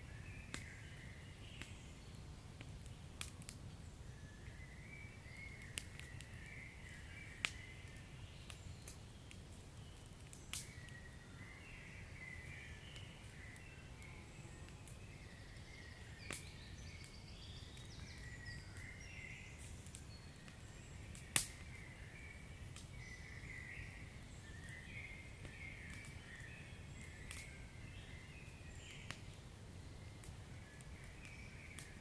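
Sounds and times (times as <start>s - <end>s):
log fire rumbling: 0.1s - 32.0s
sharp pops of fire: 2.6s - 3.7s, 5.6s - 11.0s, 16.2s - 16.5s, 19.6s - 21.8s, 22.7s - 23.0s, 25.4s - 26.2s, 27.0s - 28.0s.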